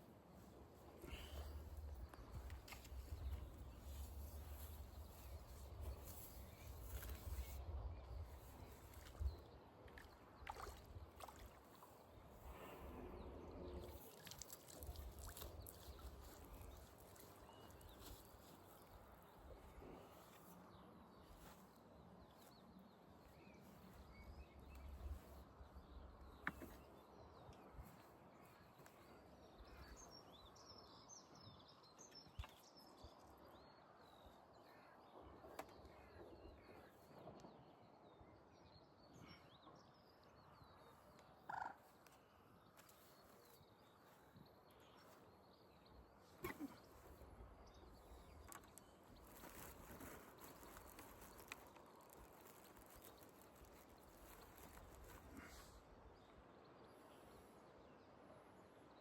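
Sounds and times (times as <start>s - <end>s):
faint birds twittering: 0.0s - 59.0s.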